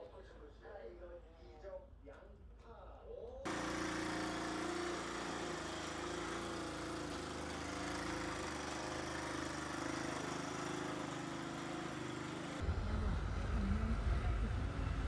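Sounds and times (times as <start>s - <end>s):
road noise: 3.5s - 15.0s
vehicle engine humming: 3.5s - 15.0s.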